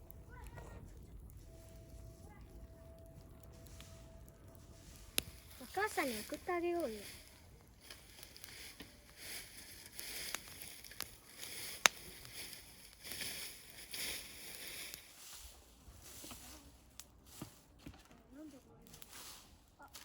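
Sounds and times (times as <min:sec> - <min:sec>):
wood fire crackling: 0:00.0 - 0:20.0
soft hiss: 0:03.5 - 0:17.6
sharp pops: 0:07.8 - 0:13.6.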